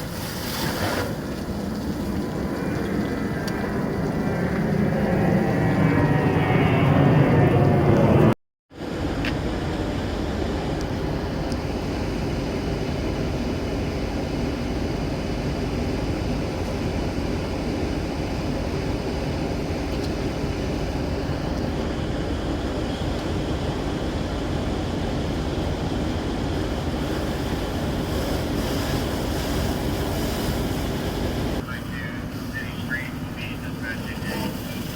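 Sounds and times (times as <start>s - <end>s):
heavy vehicle engine idling: 10.0s - 34.9s.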